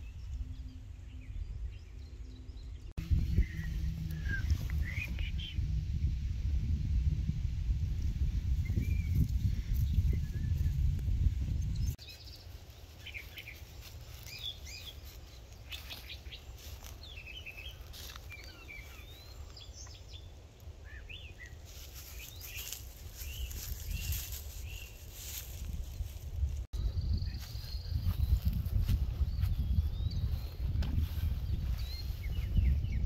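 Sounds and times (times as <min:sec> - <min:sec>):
birds chirping and whistling: 0:00.0 - 0:05.8, 0:08.6 - 0:12.4, 0:13.0 - 0:25.7, 0:26.8 - 0:33.0
low microphone rumble: 0:00.0 - 0:12.0, 0:23.3 - 0:33.0.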